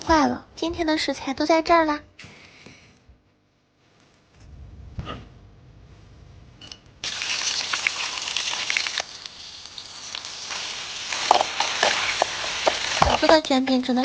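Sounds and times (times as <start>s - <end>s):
low rumble: 4.4s - 6.6s
food sizzling in a pan: 7.0s - 14.0s.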